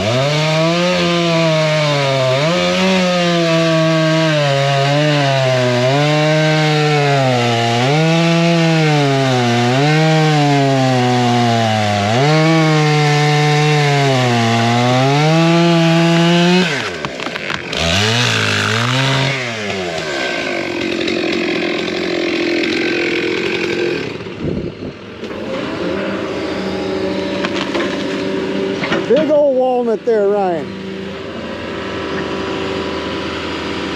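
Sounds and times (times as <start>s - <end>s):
chainsaw cutting under load: 0.0s - 33.9s
low steady engine: 28.2s - 33.9s.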